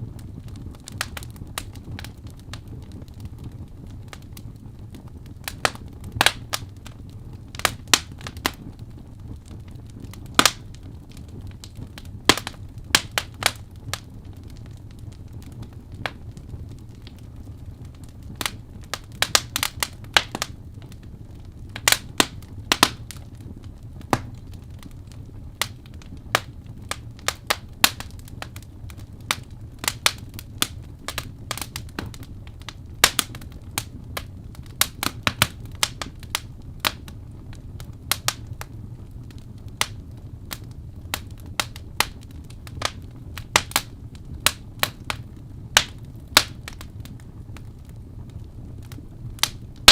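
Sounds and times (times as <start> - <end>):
wood fire crackling and popping: 0.0 - 49.9.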